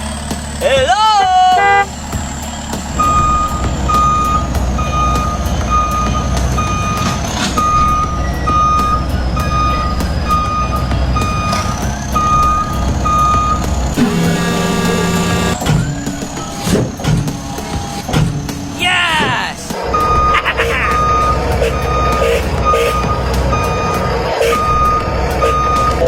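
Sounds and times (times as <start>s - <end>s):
reversing beep: 3.0s - 16.7s, 19.9s - 26.0s
toy engine rumble: 13.0s - 18.7s.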